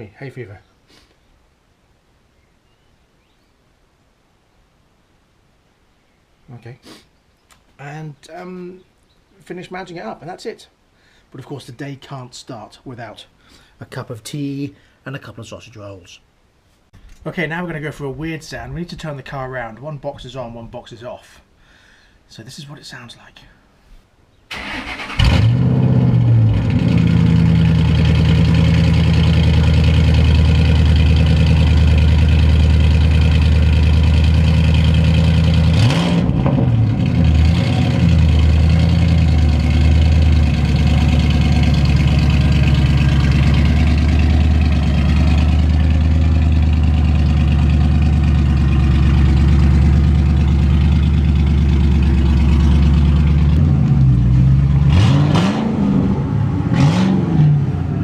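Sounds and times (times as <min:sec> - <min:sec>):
car engine idling and revving: 0:25.1 - 0:58.0.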